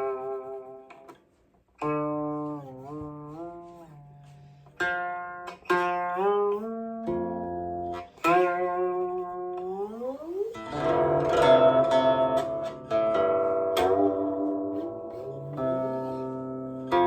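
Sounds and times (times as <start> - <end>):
plucked guqin notes sliding: 0.0 - 1.2, 1.8 - 17.0.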